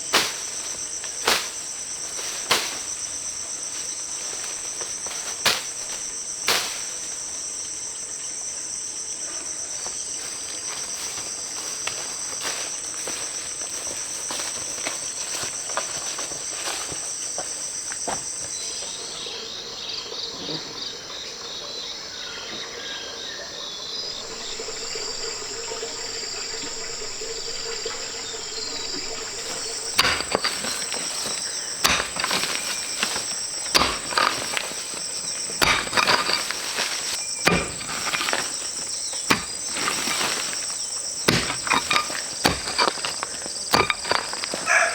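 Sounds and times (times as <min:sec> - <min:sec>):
insects trilling: 0:00.0 - 0:44.9
pulsed chirping: 0:24.0 - 0:44.9
sharp knocks: 0:24.1 - 0:44.7.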